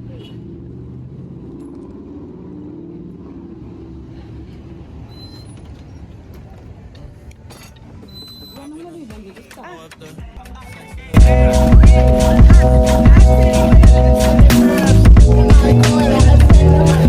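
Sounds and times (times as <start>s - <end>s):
vehicle interior rumble: 0.0s - 8.8s.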